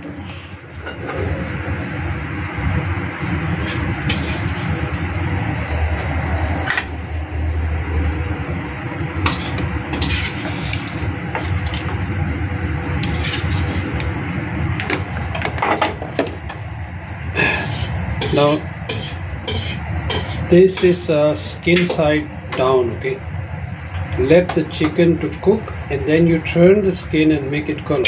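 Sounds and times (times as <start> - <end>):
utensil scraping a pan: 3.5 - 4.8, 9.3 - 11.6, 13.0 - 14.0, 17.4 - 22.0.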